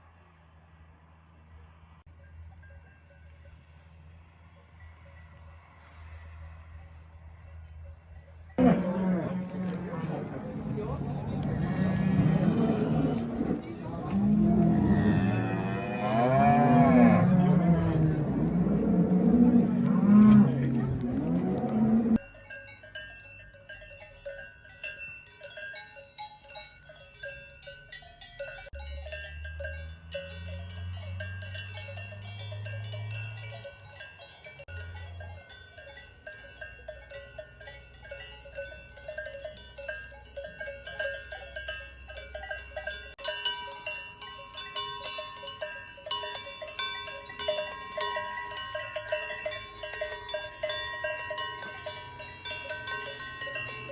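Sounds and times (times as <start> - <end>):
cowbells clanking: 2.1 - 53.9
low drawn-out sound: 16.3 - 22.2.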